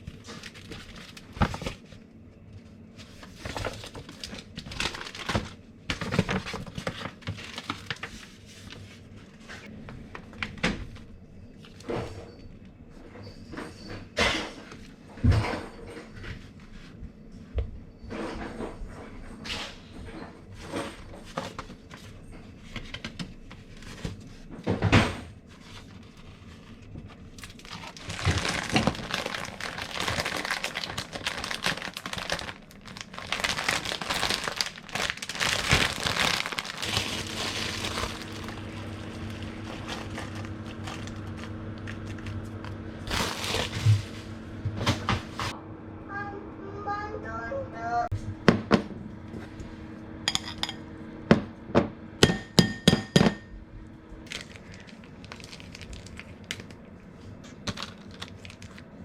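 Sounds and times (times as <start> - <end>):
packaging crinkling: 0.0 - 2.0, 3.0 - 8.8, 27.3 - 45.5, 54.2 - 59.0
steady low hum: 34.5 - 59.0.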